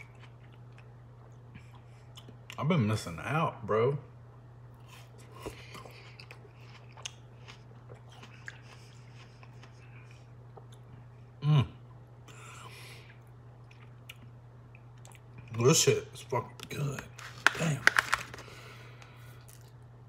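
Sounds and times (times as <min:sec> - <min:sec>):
person chewing: 0:00.0 - 0:02.6, 0:04.8 - 0:11.2, 0:11.8 - 0:15.5, 0:17.1 - 0:19.8.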